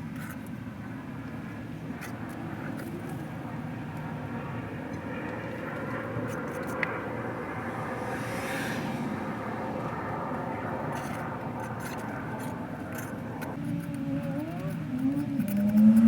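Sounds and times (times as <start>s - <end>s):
motor running: 11.8s - 16.0s.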